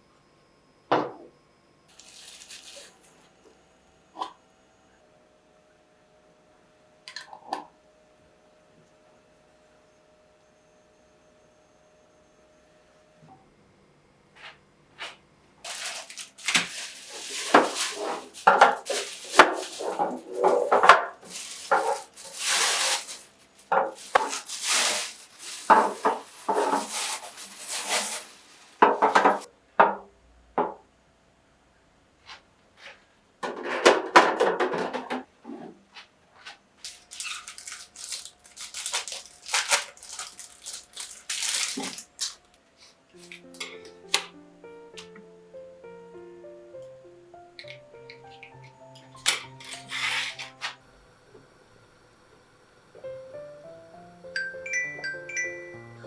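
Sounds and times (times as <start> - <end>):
rustling and scraping: 14.4 - 29.5, 47.6 - 50.8
dishes knocking and clattering: 17.5 - 22.0, 28.8 - 30.0, 30.6 - 30.8, 33.4 - 35.3.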